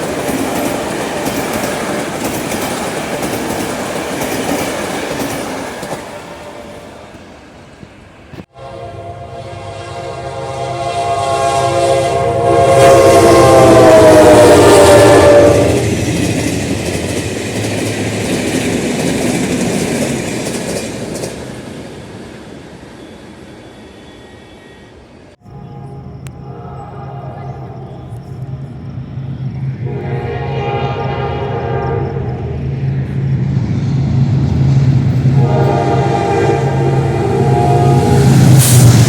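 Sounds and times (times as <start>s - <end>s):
passing train rumble: 0.0s - 39.0s
locomotive horn blast: 8.5s - 16.0s, 24.7s - 28.7s, 29.8s - 32.8s, 35.1s - 39.0s.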